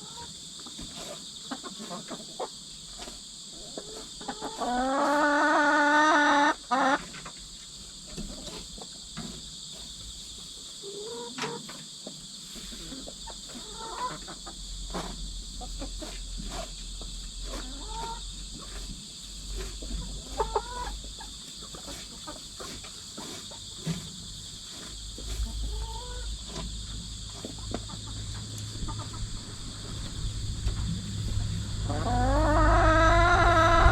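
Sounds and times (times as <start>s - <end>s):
hens clucking: 0.0s - 9.4s, 10.7s - 33.9s
insect chirring: 2.4s - 33.9s
hen squawking: 31.9s - 33.9s.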